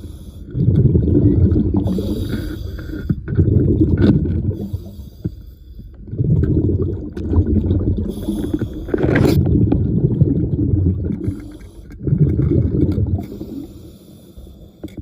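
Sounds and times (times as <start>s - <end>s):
exhaled bubbles rushing: 0.0s - 5.0s, 6.0s - 13.7s
hissing inhalation through regulator: 1.8s - 3.2s, 8.1s - 9.0s.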